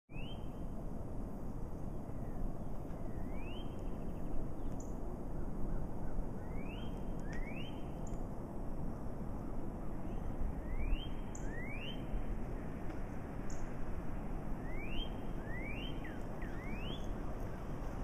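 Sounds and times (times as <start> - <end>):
low outdoor background rumble: 0.1 - 18.0
bird rising whistle: 3.1 - 3.8, 6.4 - 8.0, 10.6 - 12.2, 14.6 - 17.4.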